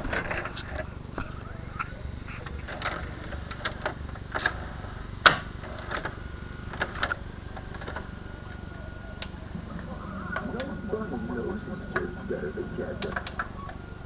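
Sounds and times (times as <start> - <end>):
low steady hum: 6.5 - 14.0.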